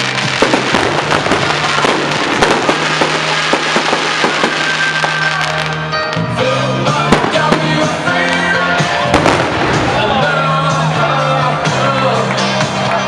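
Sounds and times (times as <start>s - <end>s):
fireworks bangs: 0.0s - 6.3s, 6.9s - 10.7s
music with bass line: 0.0s - 13.0s.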